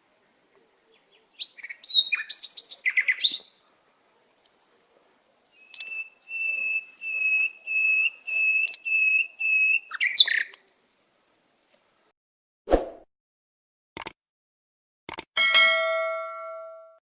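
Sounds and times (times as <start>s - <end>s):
bird quick chirps: 0.9s - 3.6s, 5.6s - 12.1s
bird whistling notes: 5.6s - 10.5s
clicks: 5.7s - 6.0s, 8.6s - 8.9s, 14.0s - 14.2s, 15.1s - 15.3s.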